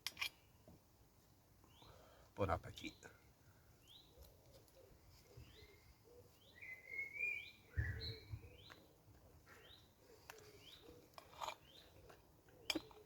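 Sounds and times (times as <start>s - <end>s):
songbird calling: 1.6s - 2.1s, 3.7s - 13.0s.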